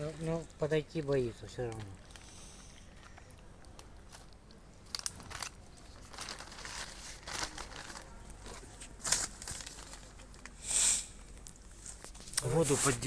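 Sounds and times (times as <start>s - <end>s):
plastic packaging crinkling: 0.1s - 10.6s.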